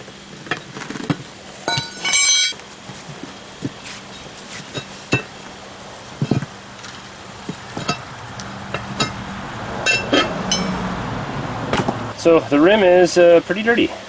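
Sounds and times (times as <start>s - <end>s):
tools clinking on steel rim: 1.7s - 2.6s, 7.8s - 8.1s, 9.8s - 10.9s.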